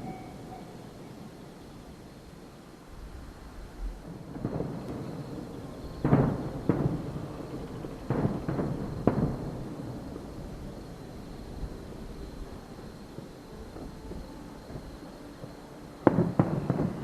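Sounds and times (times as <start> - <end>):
distant fireworks booming: 3.7 - 17.0.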